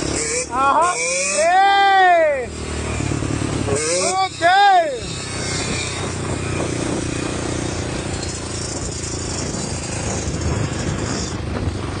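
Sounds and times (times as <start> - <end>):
dirt bike engine running: 0.0 - 12.0
wind noise: 5.0 - 12.0.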